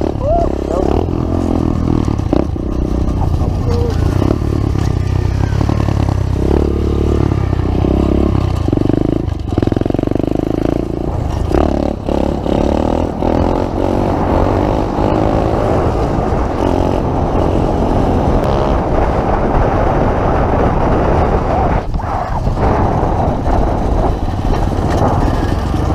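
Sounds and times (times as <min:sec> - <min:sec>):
pit bike engine revving: 0:00.0 - 0:19.8.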